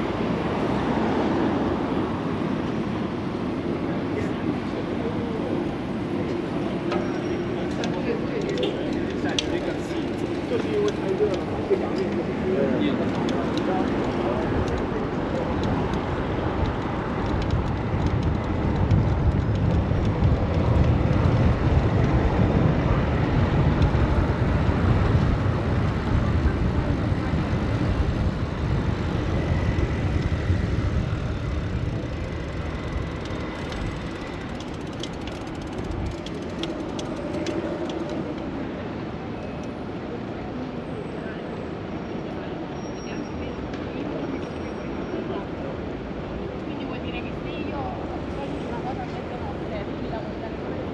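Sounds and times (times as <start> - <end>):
city traffic rumble: 0.0 - 50.9
wind noise: 13.2 - 34.9.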